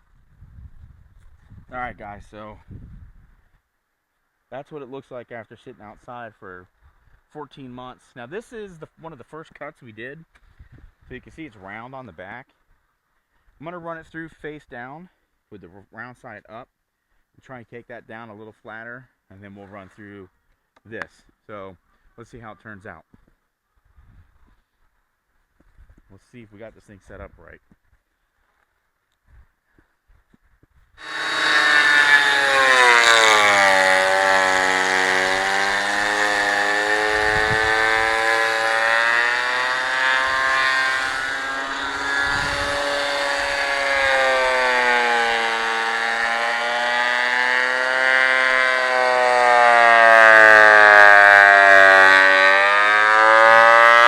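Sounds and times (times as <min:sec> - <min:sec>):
thickness planer whining: 0:31.0 - 0:54.0.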